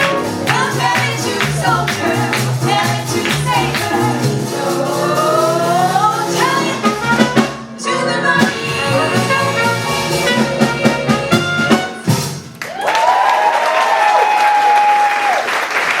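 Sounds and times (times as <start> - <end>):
swing band with brass: 0.0 - 12.6
female vocal trio singing: 0.5 - 6.9, 7.8 - 11.7.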